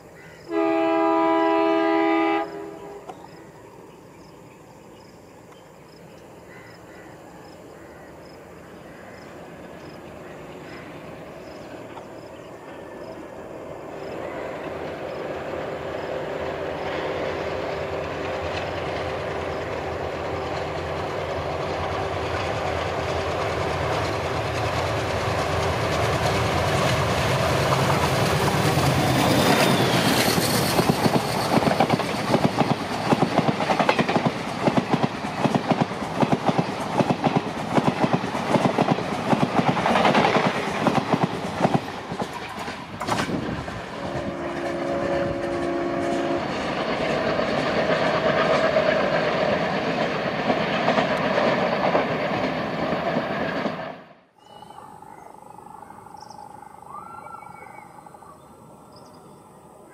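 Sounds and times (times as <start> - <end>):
diesel locomotive drone: 0.0 - 59.9
train wheels clickety-clack: 16.4 - 54.1.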